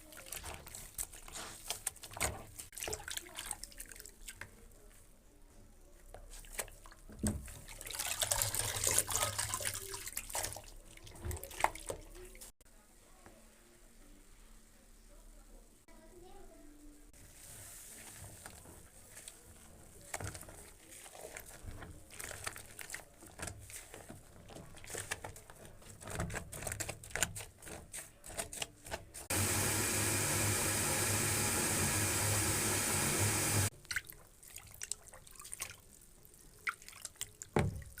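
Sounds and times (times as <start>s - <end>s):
water splashing and dripping: 0.0s - 4.6s, 6.4s - 12.5s, 29.4s - 38.0s
tap running: 29.3s - 33.7s.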